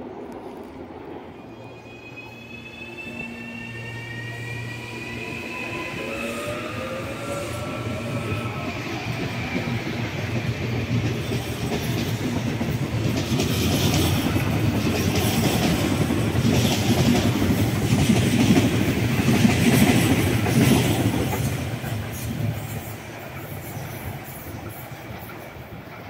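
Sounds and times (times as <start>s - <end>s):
electric train passing: 0.0s - 26.0s
train wheels clattering on rails: 6.4s - 26.0s.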